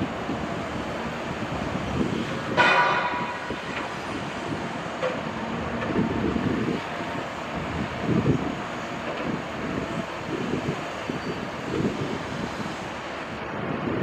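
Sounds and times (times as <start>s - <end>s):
heavy machinery rumbling and clanking: 0.0s - 14.0s
loud metallic clang: 2.6s - 3.8s.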